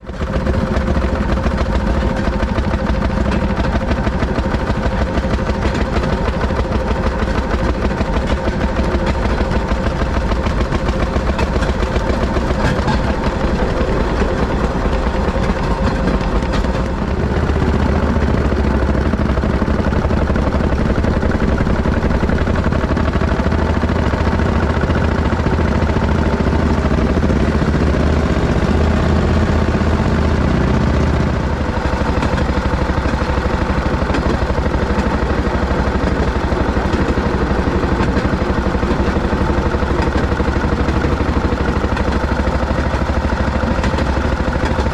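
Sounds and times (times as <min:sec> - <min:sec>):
railroad speeder engine drone: 0:00.0 - 0:44.9.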